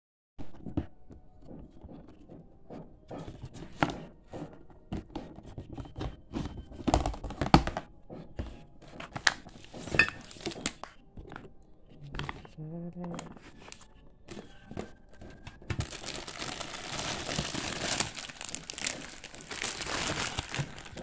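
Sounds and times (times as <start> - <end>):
wrapping crinkling and tearing: 9.1 - 10.9, 15.1 - 21.0.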